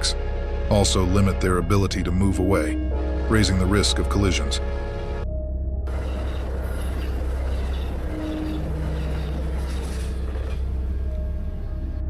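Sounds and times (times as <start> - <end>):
train rumbling on rails: 5.9 - 11.7.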